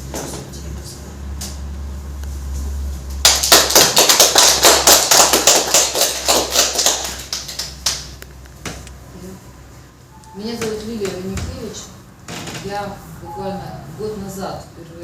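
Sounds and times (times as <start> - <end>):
small group clapping: 3.1 - 8.5.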